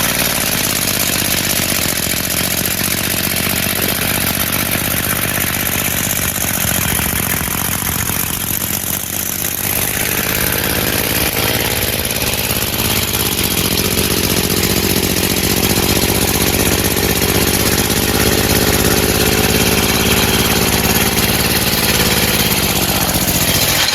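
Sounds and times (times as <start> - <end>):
compressed-air engine puffing: 6.3 - 23.9.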